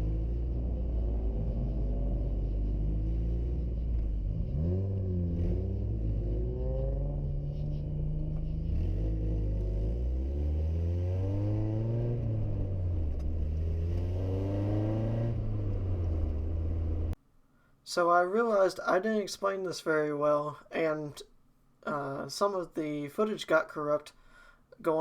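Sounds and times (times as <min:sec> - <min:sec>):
car engine accelerating: 0:00.0 - 0:17.2.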